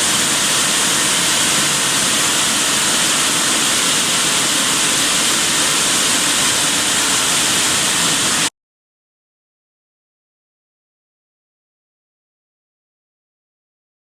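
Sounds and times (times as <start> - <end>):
water jets spraying hiss: 0.0 - 8.5.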